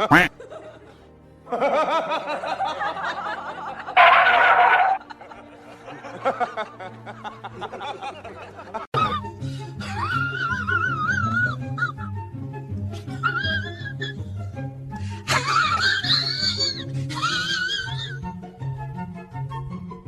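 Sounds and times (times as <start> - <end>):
person laughing and snickering: 0.0 - 0.3
background music: 0.0 - 20.0.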